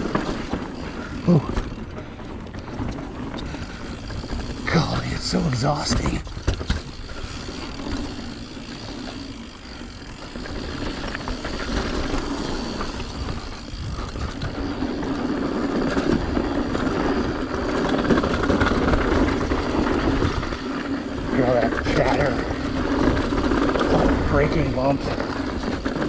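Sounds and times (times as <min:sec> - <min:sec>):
bike chattering over bumps: 0:00.0 - 0:26.0
bike tyre noise on trail: 0:00.0 - 0:26.0
wind on microphone: 0:13.1 - 0:14.6.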